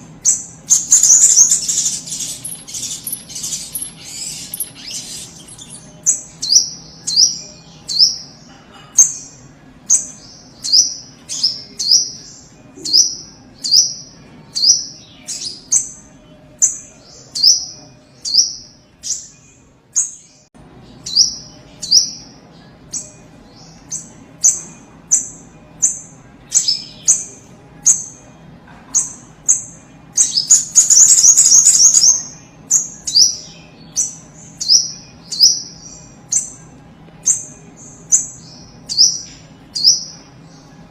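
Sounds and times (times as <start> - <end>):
bird fast chattering: 0.7 - 6.1
bird calling sharp high chips: 0.8 - 5.9.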